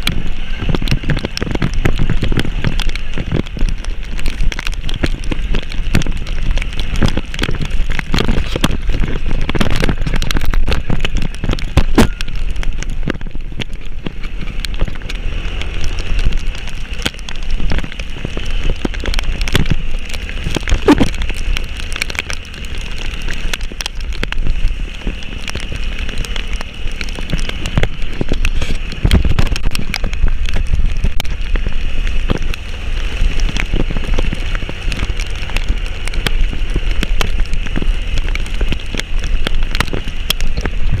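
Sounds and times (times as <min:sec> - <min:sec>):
heavy rain falling: 0:00.0 - 0:41.0
low rumble: 0:00.0 - 0:41.0
raindrop impacts close by: 0:00.0 - 0:41.0.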